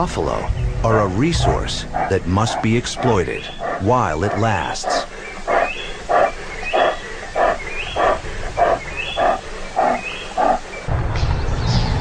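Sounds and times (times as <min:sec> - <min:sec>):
lioness roaring: 0:01.2 - 0:10.8.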